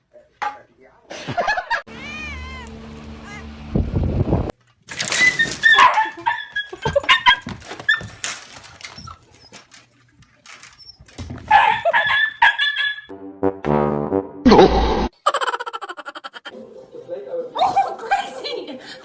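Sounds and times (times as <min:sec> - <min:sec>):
dog barking and yapping: 0:05.2 - 0:09.7, 0:11.0 - 0:13.1.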